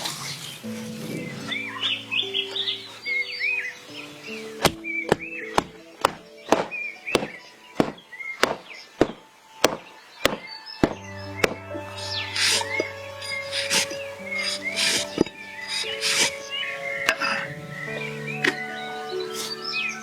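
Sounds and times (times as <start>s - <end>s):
music with held low tones: 0.4s - 20.0s
sharp knocks: 4.6s - 11.6s.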